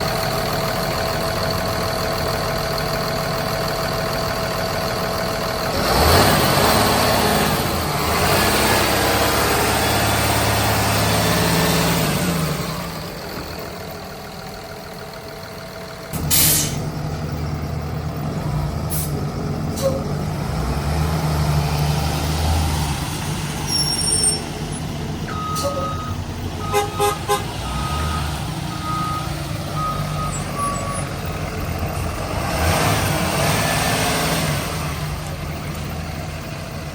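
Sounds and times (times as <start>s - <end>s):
diesel bus engine idling: 0.0s - 33.4s, 34.6s - 36.9s
short beeps: 25.3s - 27.2s.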